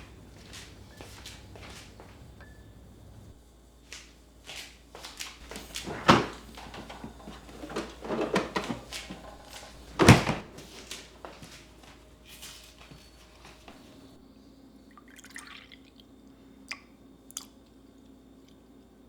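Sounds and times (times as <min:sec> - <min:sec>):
kitchen objects clicking and clattering: 0:05.4 - 0:10.9.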